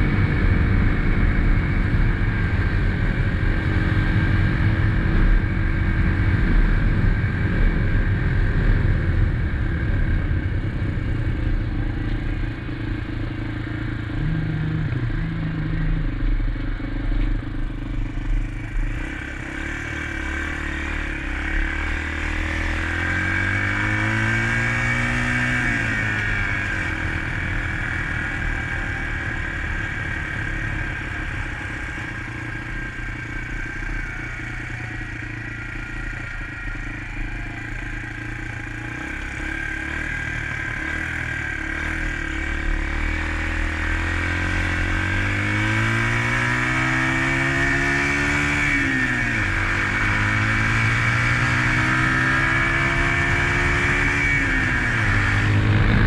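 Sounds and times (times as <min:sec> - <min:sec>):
wind rumble on microphone: 0:00.0 - 0:13.5, 0:53.1 - 0:56.0
dirt bike engine running: 0:00.0 - 0:56.0.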